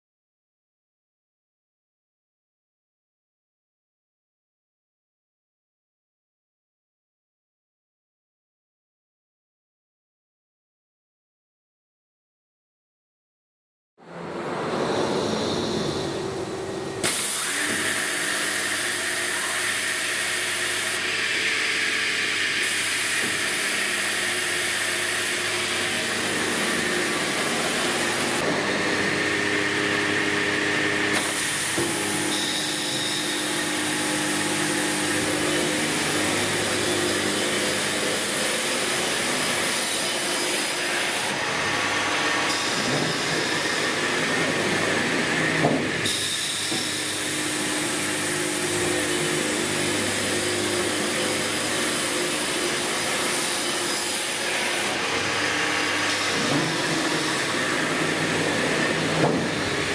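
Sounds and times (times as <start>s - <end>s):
panel saw running: 14.4s - 59.9s.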